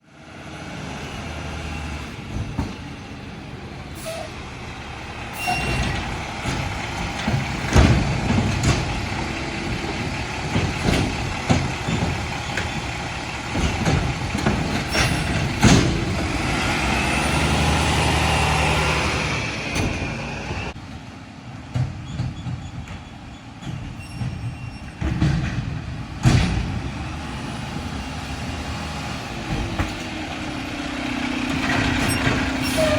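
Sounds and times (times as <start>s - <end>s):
garbage truck running: 0.0s - 32.9s
clanks and bangs: 5.4s - 16.9s, 21.7s - 27.1s.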